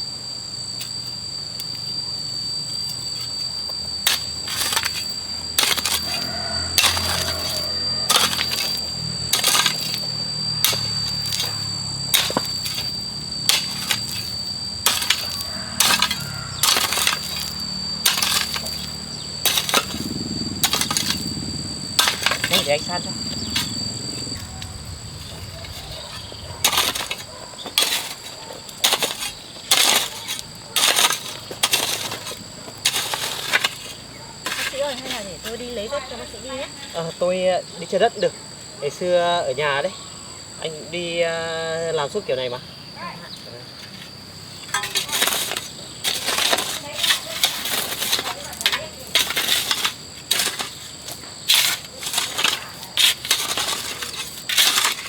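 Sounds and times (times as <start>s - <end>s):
hoe scraping through soil: 4.0s - 36.0s, 43.8s - 55.0s.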